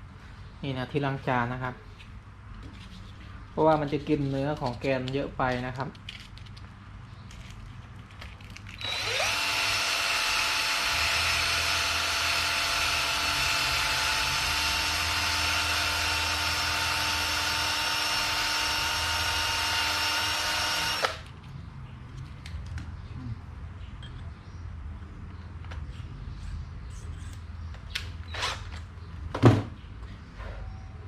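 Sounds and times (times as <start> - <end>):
electric drill whine: 8.8 - 21.2.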